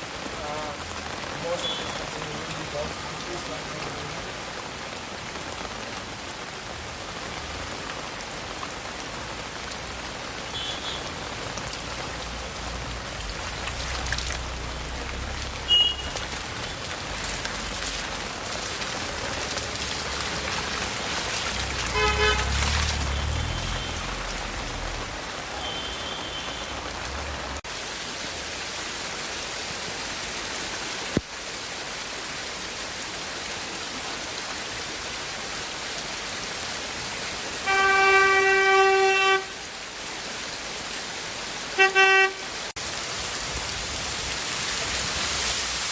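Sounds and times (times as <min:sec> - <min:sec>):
heavy rain falling: 0:00.0 - 0:45.9
vehicles passing on wet road: 0:00.0 - 0:45.9
short horn toots: 0:21.9 - 0:24.0, 0:37.7 - 0:39.6, 0:41.8 - 0:42.6.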